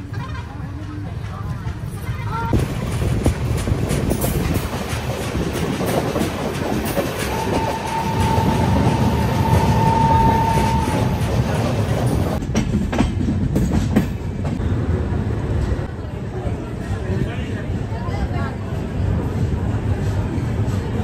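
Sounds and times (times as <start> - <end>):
wheels clicking over rail joints: 0.0 - 14.6
train wheels rumbling on rail: 0.0 - 21.0
steady high tone: 7.2 - 11.8.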